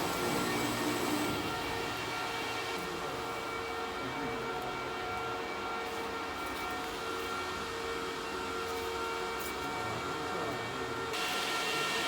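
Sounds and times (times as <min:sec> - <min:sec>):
milling machine whine: 0:00.0 - 0:02.9.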